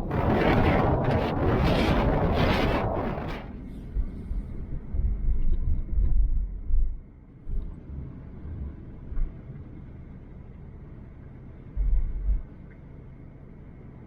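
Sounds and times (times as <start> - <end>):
wind buffeting microphone: 0.0 - 9.5, 11.7 - 12.5.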